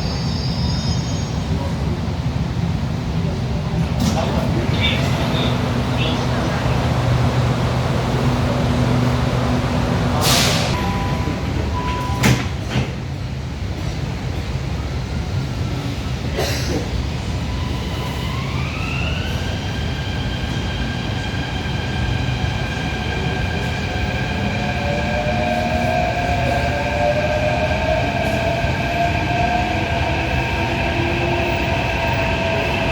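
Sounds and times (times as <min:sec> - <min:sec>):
train rumble from inside car: 0:01.6 - 0:17.3.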